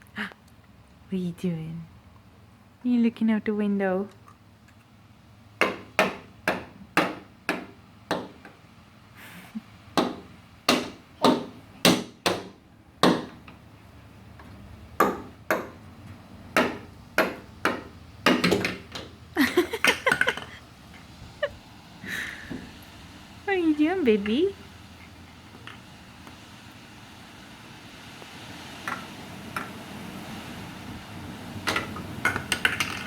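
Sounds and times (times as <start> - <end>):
sharp knocks and taps: 5.6 - 8.6, 14.4 - 19.2.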